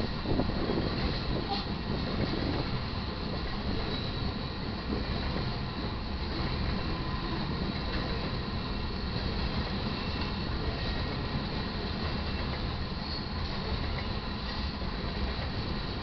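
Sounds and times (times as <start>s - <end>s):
train wheels rumbling on rails: 0.0s - 16.0s
faint thin squeal: 3.9s - 4.4s, 13.0s - 13.4s.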